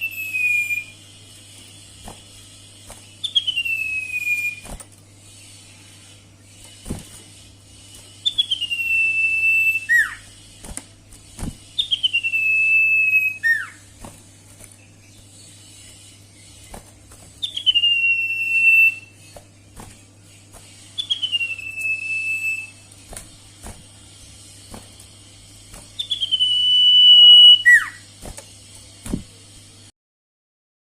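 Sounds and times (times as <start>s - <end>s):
whistled bird calls: 0.0s - 1.1s, 2.4s - 4.7s, 8.2s - 10.3s, 11.7s - 13.9s, 17.4s - 19.4s, 20.8s - 22.8s, 26.0s - 28.1s
steady low hum: 0.0s - 29.9s.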